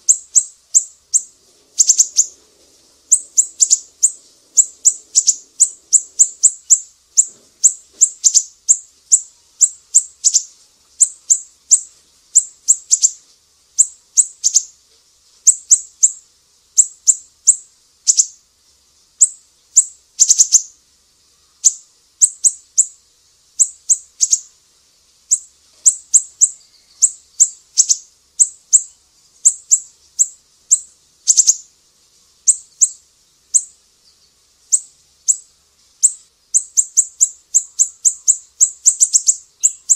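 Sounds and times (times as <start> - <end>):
high-pitched songbird chirps: 0.0 - 2.4, 3.1 - 13.2, 13.8 - 14.7, 16.8 - 18.4, 19.2 - 20.7, 21.6 - 23.0, 23.6 - 24.5, 25.3 - 31.6, 32.5 - 33.0, 33.6 - 39.9.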